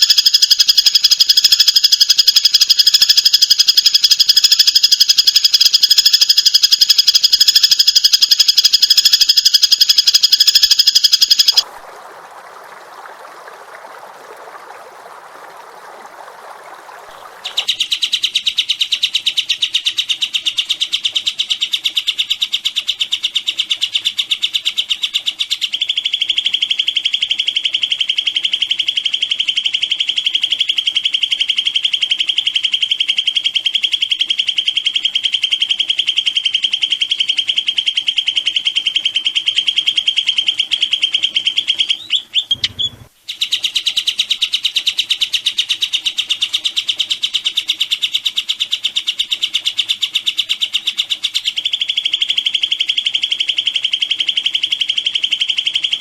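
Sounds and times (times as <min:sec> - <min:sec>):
songbird fast high trill: 0:00.0 - 0:11.6.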